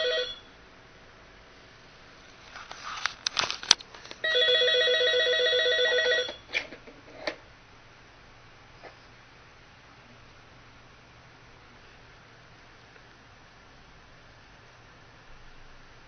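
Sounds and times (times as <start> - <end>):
electronic phone ringer: 0.0 - 0.5, 4.2 - 6.5.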